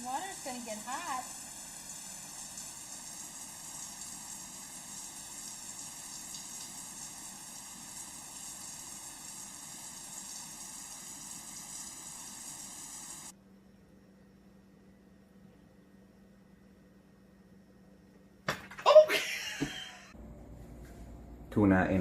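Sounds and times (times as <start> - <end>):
water running from a tap: 0.0 - 13.3.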